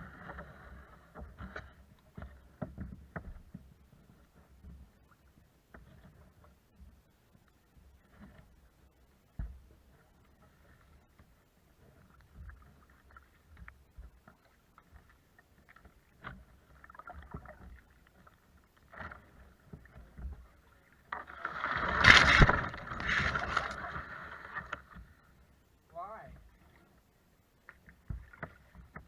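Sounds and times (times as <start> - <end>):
water splashing around a kayak: 0.0 - 29.0
knocks and clicks on a boat: 0.2 - 5.0, 9.3 - 9.9, 27.6 - 29.0.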